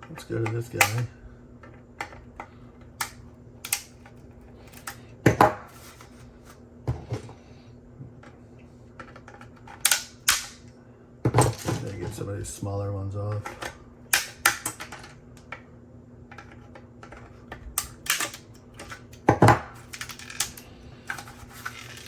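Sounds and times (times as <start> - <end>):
plastic snapping: 3.0 - 4.1, 9.8 - 10.6, 13.6 - 15.6.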